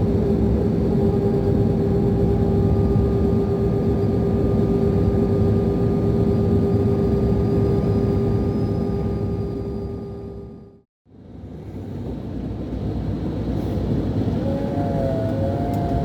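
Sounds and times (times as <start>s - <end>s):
steady whistling whine: 0.0s - 10.8s, 12.6s - 16.0s
coach engine drone: 11.4s - 16.0s.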